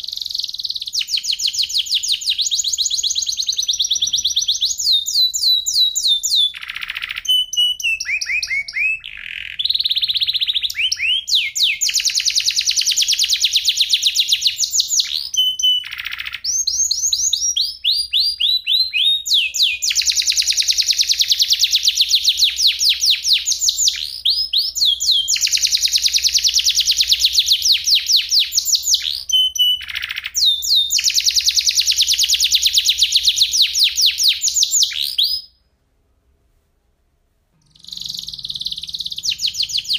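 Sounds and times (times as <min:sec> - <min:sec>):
canary singing rolling trills: 0:00.0 - 0:35.6, 0:37.6 - 0:39.9.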